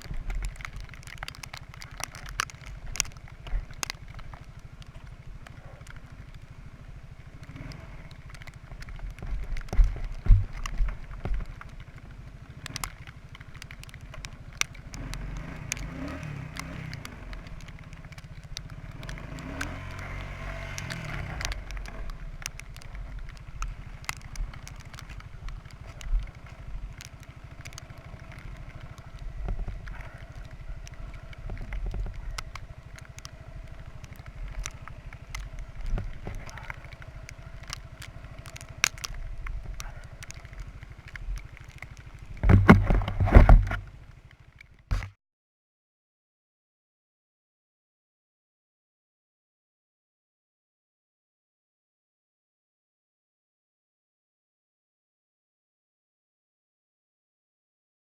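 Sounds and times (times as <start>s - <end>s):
atv engine revving: 0.0s - 45.1s.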